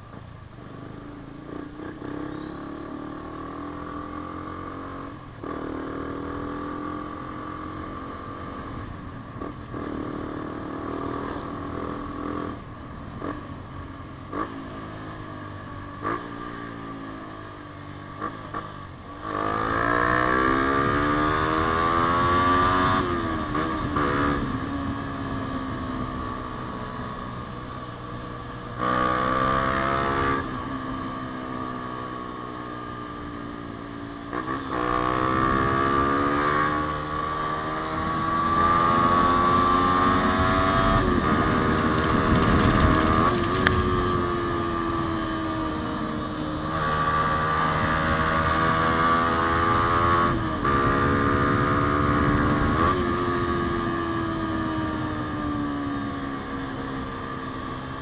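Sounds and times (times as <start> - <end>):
motorcycle engine revving: 0.7 - 58.0.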